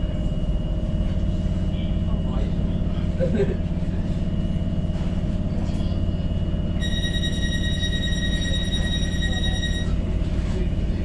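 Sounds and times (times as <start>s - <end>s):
train running with low hum: 0.0s - 11.0s
steady high-pitched tone: 6.8s - 10.0s.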